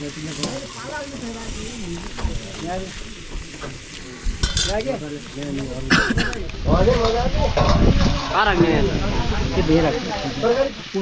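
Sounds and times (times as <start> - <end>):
food sizzling in a pan: 0.0 - 5.9, 6.6 - 11.0
utensil clinking and scraping: 3.5 - 5.6.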